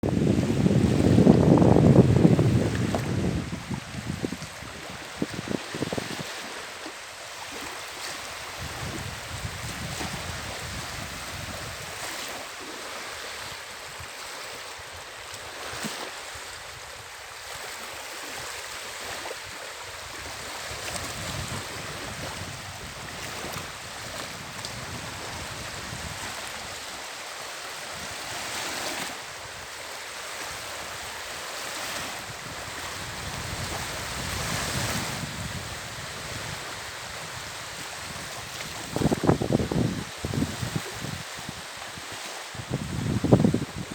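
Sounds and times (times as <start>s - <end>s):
wind gusting on microphone: 0.0s - 6.7s, 7.5s - 12.4s, 19.4s - 27.0s, 31.8s - 43.9s
sea waves washing ashore: 0.0s - 43.9s.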